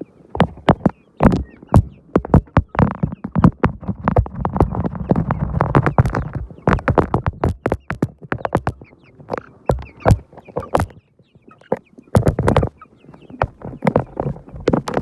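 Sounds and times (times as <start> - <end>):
chickens chirping: 0.0 - 15.0
sharp clicks and taps: 0.4 - 11.0, 11.7 - 12.7.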